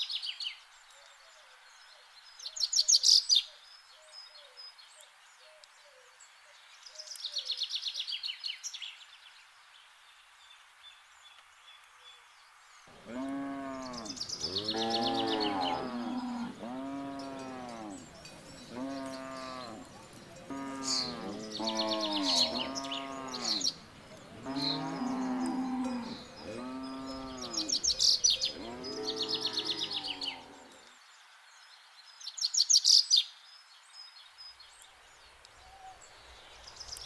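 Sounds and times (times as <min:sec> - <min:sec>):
birds chirping in trills: 0:12.7 - 0:31.0
cows mooing: 0:12.9 - 0:30.8.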